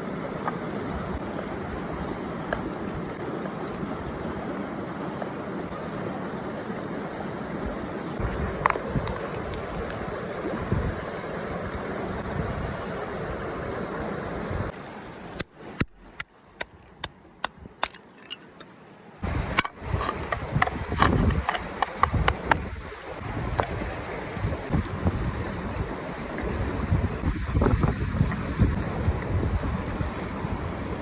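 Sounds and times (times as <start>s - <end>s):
river water rushing: 0.0s - 15.8s, 18.5s - 31.0s
wind on microphone: 7.6s - 14.7s, 19.2s - 31.0s
sharp clicks and taps: 19.5s - 22.7s.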